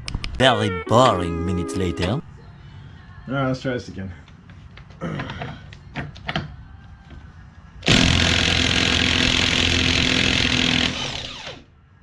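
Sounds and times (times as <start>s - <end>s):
impact wrench hammering: 7.8s - 11.3s.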